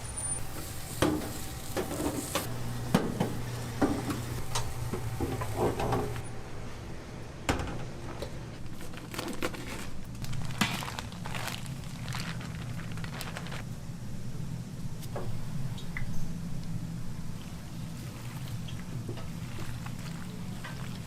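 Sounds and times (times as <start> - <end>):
kitchen knocks and clatter: 1.0 - 6.2.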